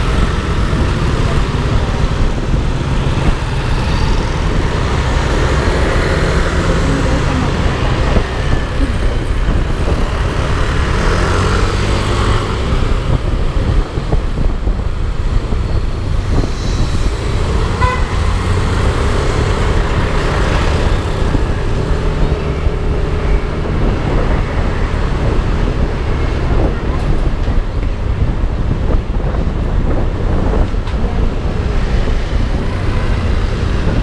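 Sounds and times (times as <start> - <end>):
traffic noise: 0.0 - 34.0
wind rush: 0.0 - 34.0
horn toot: 17.7 - 18.4.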